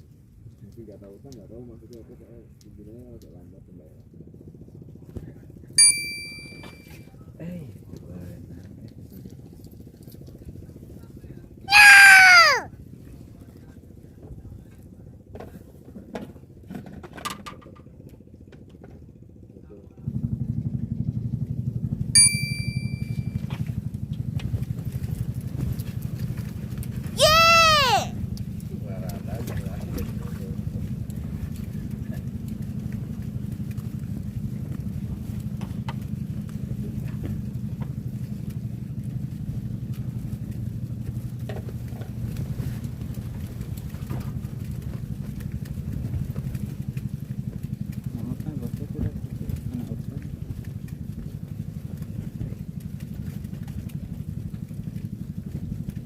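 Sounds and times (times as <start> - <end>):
metallic ding: 5.8 - 6.9, 22.2 - 23.2
small boat engine running: 30.5 - 56.0.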